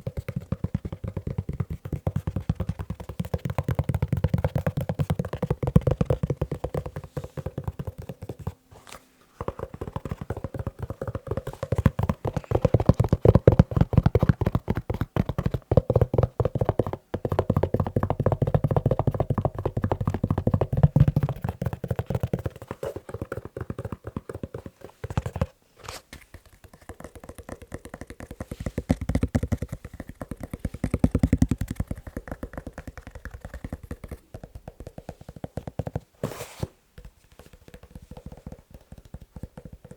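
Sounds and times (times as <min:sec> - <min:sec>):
rapid tapping on leather shoe: 0:00.0 - 0:08.6, 0:09.4 - 0:25.6, 0:26.3 - 0:36.2, 0:37.0 - 0:39.9.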